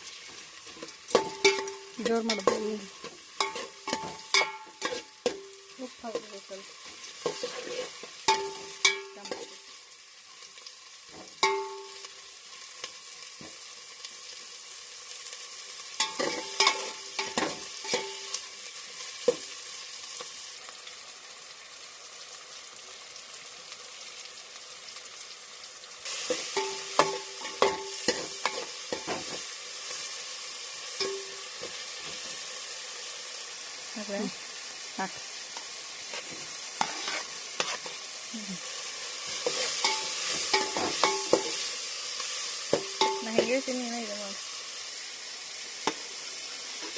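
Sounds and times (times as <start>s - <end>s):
onions sizzling in oil: 0.0s - 46.9s
metal spoon clinking on pot: 31.0s - 31.4s, 42.8s - 43.5s.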